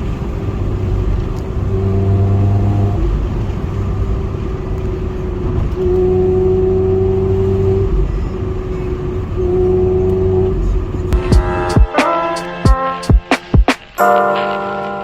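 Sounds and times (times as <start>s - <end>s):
car exhaust drone: 0.0s - 12.6s
sharp hits: 11.2s - 14.9s.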